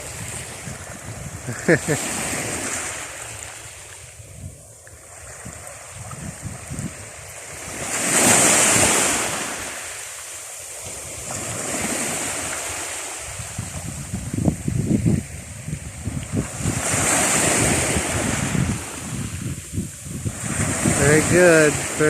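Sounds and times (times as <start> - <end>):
ocean waves crashing on beach: 0.0 - 22.0.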